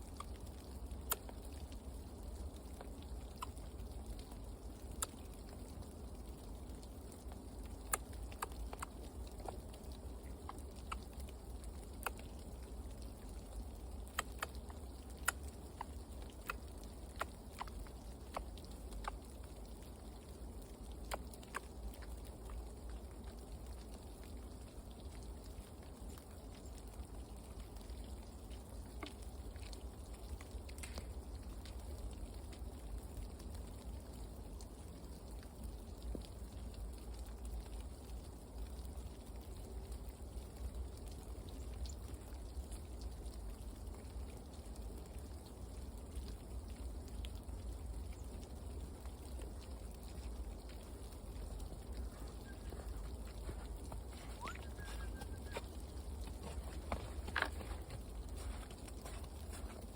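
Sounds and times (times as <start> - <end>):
faint light ticks: 0.0 - 59.9
faint chirp: 52.0 - 56.0.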